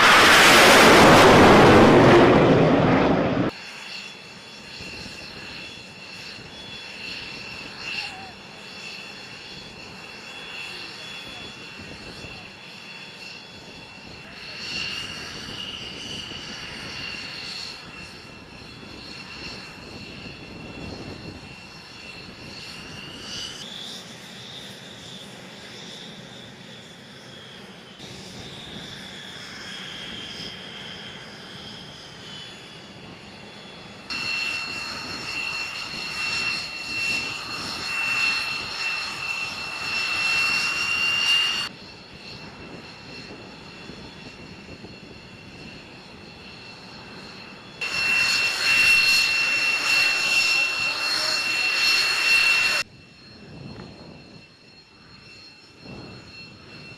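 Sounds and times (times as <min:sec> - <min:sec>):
rushing noise: 0:00.0 - 0:03.5
jet engine whining: 0:00.0 - 0:56.9.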